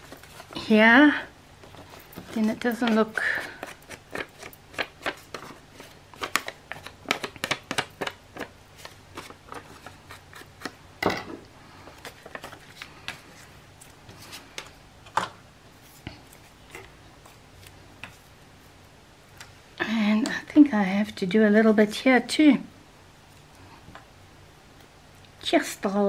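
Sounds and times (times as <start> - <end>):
paper crackling and rustling: 0.0 - 0.8, 1.6 - 10.8, 11.9 - 14.7.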